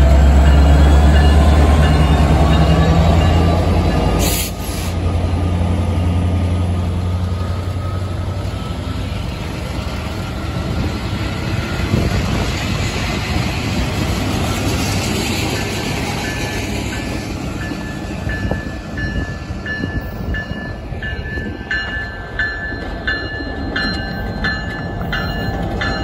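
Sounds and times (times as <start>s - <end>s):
tank cars rumbling on rails: 0.0s - 20.0s
locomotive engine drone: 0.0s - 26.0s.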